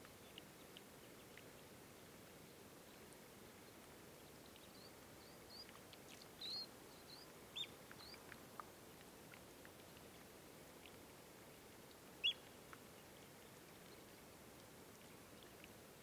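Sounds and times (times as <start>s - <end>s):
faint ticks: 0.0s - 16.0s
birds chirping: 12.2s - 12.4s.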